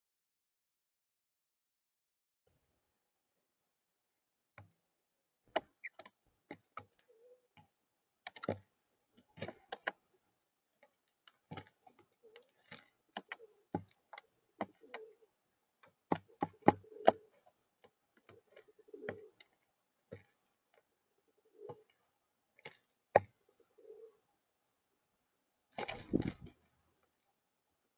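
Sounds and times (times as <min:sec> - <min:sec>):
blue jays clicking and tapping: 0:05.5 - 0:07.0, 0:10.8 - 0:15.1
soft low bird calls: 0:05.7 - 0:06.1, 0:06.9 - 0:07.6.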